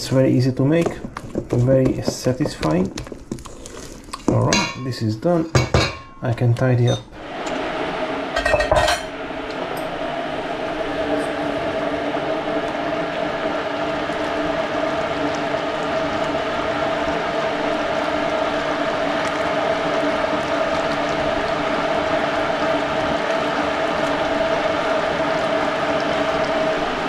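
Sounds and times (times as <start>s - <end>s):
dishes and utensils clattering: 4.4s - 5.0s, 5.6s - 7.1s, 8.4s - 9.1s
steady rushing noise: 7.2s - 14.1s.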